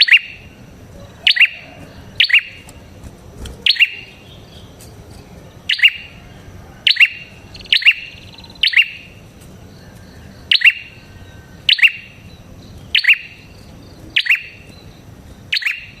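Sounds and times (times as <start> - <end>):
bird double chirp calling: 0.0 - 0.6, 1.2 - 2.9, 3.6 - 4.8, 5.6 - 6.2, 6.8 - 9.2, 9.8 - 16.0.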